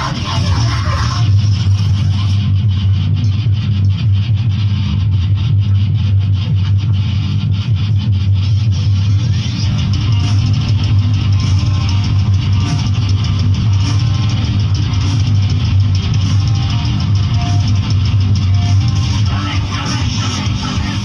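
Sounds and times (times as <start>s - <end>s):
rock music with guitar and drums: 0.0s - 21.0s.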